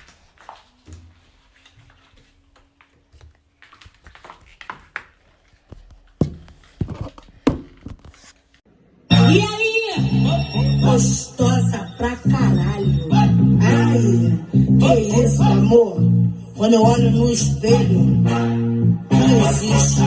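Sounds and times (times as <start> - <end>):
pop song with singing: 9.1 - 20.0.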